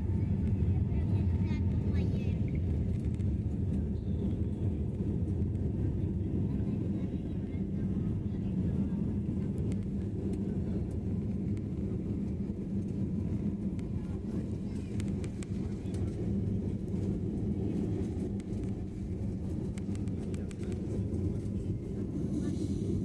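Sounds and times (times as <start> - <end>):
airliner engines in cabin: 0.0 - 23.0.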